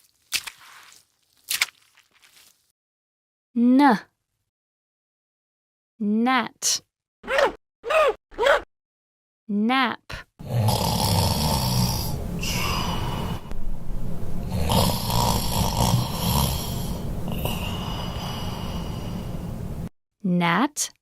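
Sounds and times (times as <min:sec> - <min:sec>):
cartoon snoring: 0:10.4 - 0:13.5, 0:14.4 - 0:19.5.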